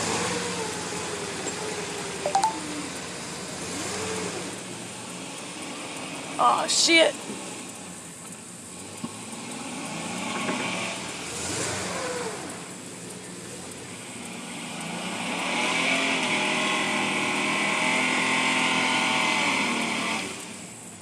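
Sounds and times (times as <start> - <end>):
truck engine revving: 8.8 - 20.7.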